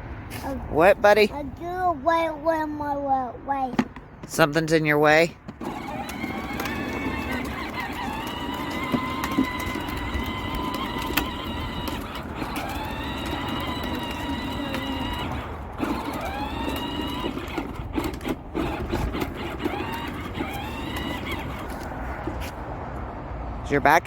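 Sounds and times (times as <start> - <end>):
toy tractor motor whining: 5.5 - 22.5.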